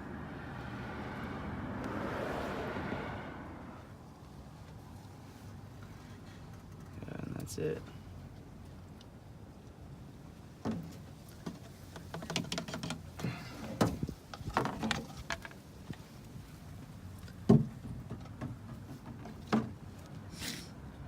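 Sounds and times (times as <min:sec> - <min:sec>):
brief hiss: 0:20.3 - 0:20.8.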